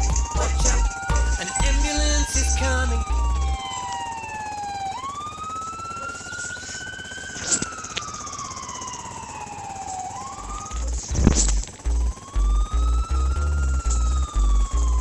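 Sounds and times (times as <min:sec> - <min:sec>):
bass beat: 0:00.0 - 0:03.6, 0:10.4 - 0:15.0
ambulance siren wailing: 0:00.0 - 0:15.0.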